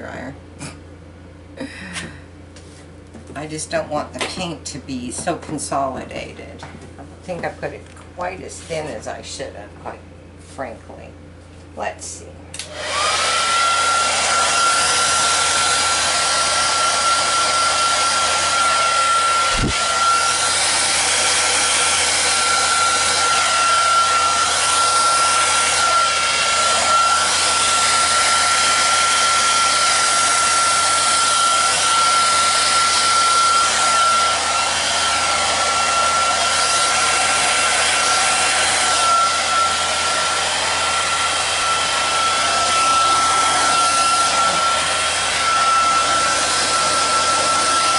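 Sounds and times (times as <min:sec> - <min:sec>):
hair dryer running: 0:12.6 - 0:47.9.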